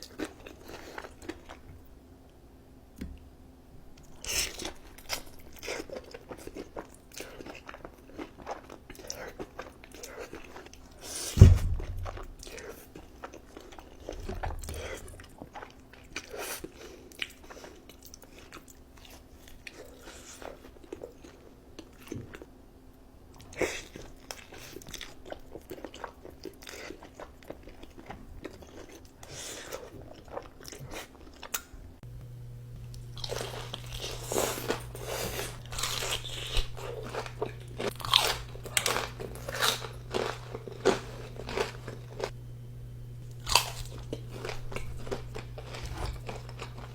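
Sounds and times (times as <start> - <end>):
crunching and chewing food: 0.0 - 2.0, 3.9 - 22.6, 23.3 - 46.9
steady low hum: 31.8 - 46.9.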